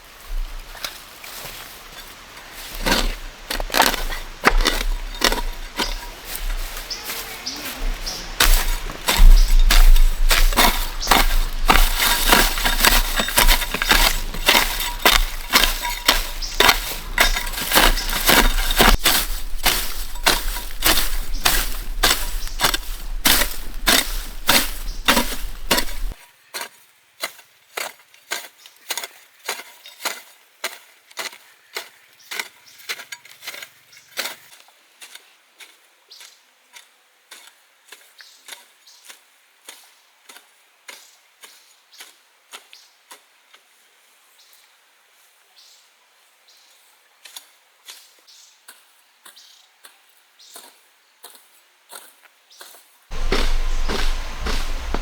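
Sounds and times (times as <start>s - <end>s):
blade chopping bamboo: 2.8s - 6.6s, 8.4s - 26.2s, 53.1s - 55.0s.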